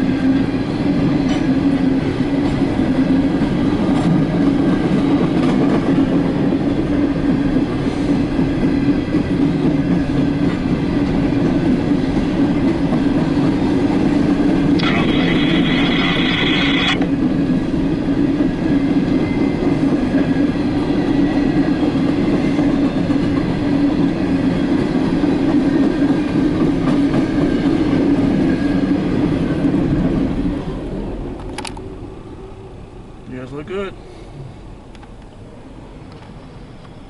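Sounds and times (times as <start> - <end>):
train cars rumbling and clattering: 0.0 - 37.0.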